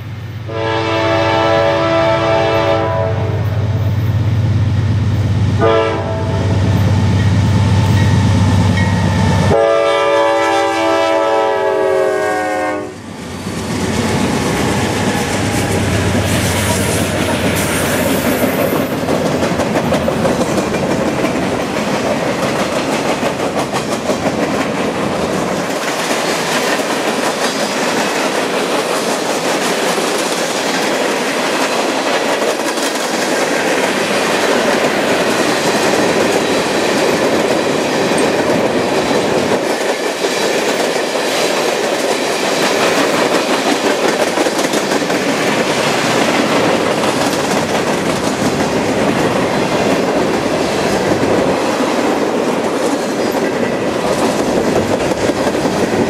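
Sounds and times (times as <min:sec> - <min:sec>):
steel wheels running on rails: 0:13.2 - 0:56.0.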